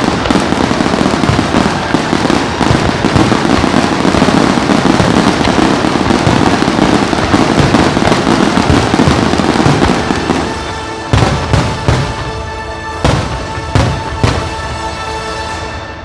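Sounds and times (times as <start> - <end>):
loud fireworks booms: 0.0 - 15.0
fireworks bursting: 0.0 - 16.0
music playing: 0.0 - 16.0.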